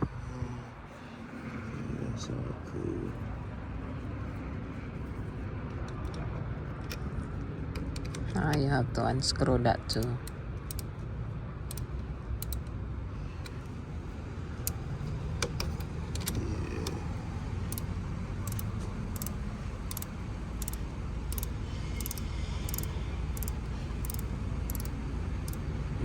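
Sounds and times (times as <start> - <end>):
low vehicle rumble: 0.0 - 26.0
socket ratchet clicking: 9.9 - 12.7, 13.4 - 26.0.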